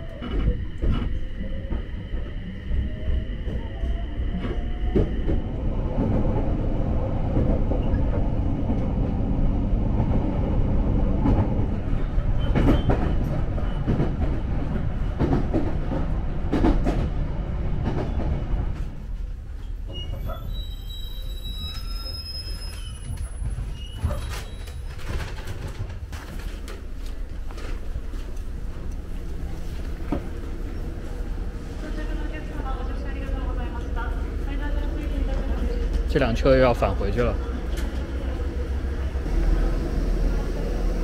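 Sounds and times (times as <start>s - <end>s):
electric train rumbling: 0.0s - 41.0s
brakes and wheels squealing: 19.9s - 25.1s.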